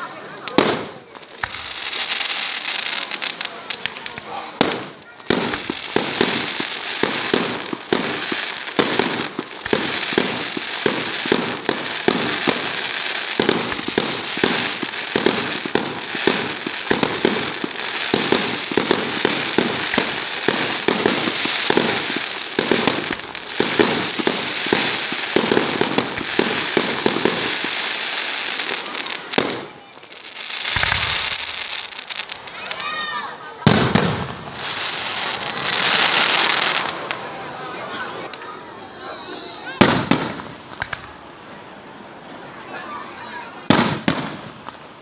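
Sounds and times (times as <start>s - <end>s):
fireworks bangs and cracks: 0.0s - 45.0s
fireworks crackling hiss: 0.0s - 45.0s.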